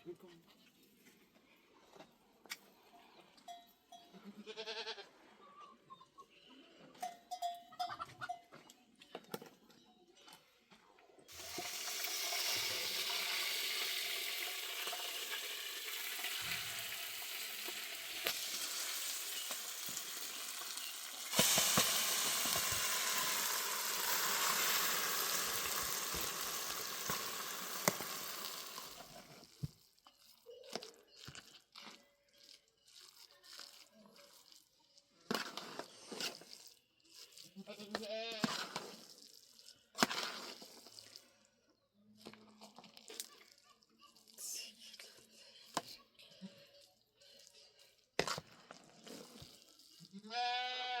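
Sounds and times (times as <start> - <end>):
food sizzling in hot oil: 11.3 - 29.4.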